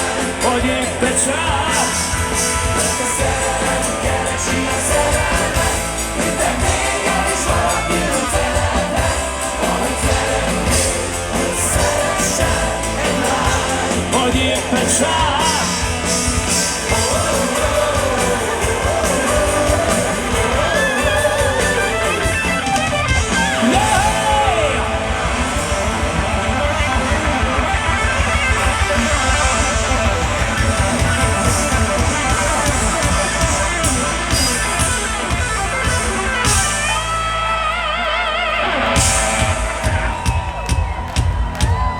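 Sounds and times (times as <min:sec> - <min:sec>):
wordless vocals: 0:00.0 - 0:26.2
electric guitar: 0:00.0 - 0:41.9
rock band playing live: 0:00.0 - 0:41.9.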